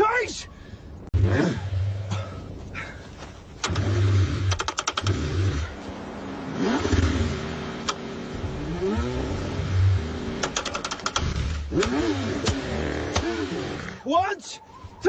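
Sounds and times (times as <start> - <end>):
starter clicks: 3.6 - 5.2, 7.8 - 8.0, 10.4 - 13.4
car engine cranking: 3.6 - 5.8, 6.5 - 14.0.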